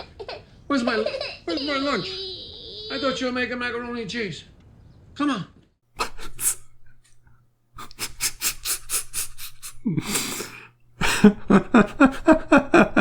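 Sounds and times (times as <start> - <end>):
person laughing: 6.0 - 7.2, 7.8 - 13.0.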